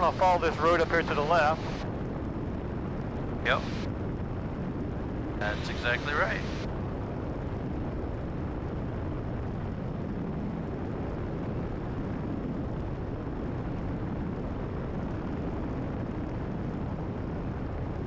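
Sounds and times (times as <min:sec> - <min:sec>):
aircraft engine and propeller droning: 0:00.0 - 0:18.0.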